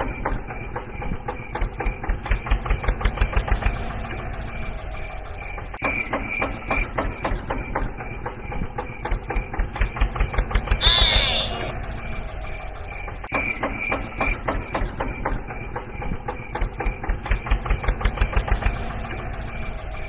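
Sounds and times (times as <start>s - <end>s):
tractor engine knocking: 0.0s - 20.0s.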